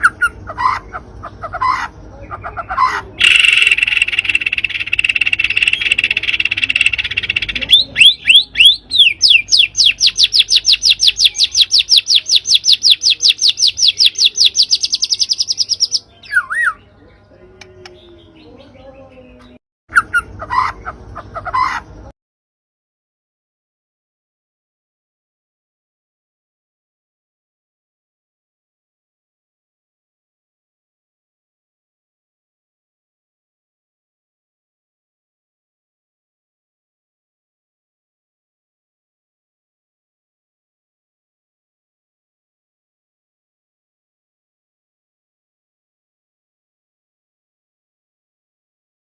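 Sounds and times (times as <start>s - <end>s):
harsh rasping bird chatter: 0.0s - 16.8s
songbird chirps: 0.0s - 22.1s.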